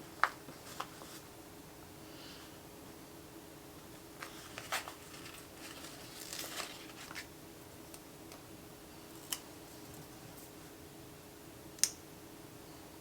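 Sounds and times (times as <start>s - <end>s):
paper crinkling and tapping: 0.0s - 1.3s, 4.2s - 7.3s
faint steady hum: 0.0s - 13.0s.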